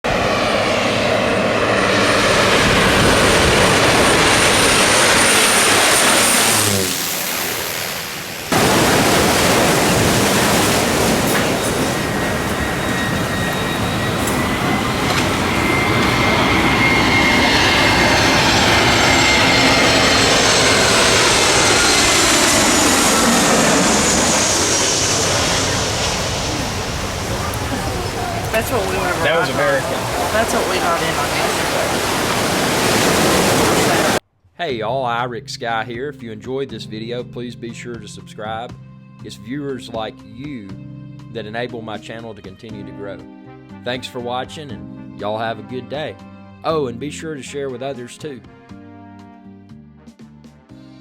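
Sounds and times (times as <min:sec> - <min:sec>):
jet airliner engines roaring: 0:00.0 - 0:34.2
faint rising jet whine: 0:00.1 - 0:34.2.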